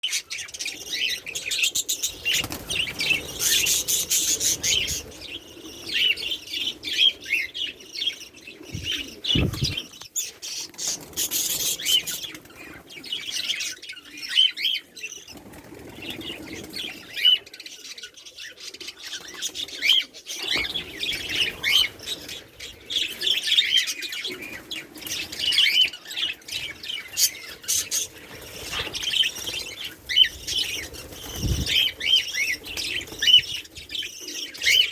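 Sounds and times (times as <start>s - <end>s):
lovebirds chirping and twittering: 0.0s - 34.9s
wings fluttering: 0.4s - 7.4s, 8.6s - 13.1s, 15.3s - 17.3s, 26.5s - 34.9s.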